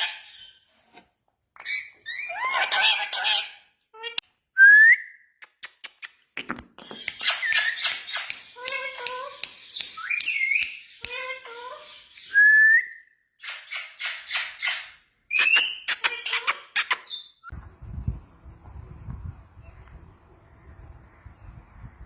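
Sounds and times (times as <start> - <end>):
parrot whistling and chattering: 13.4 - 17.5.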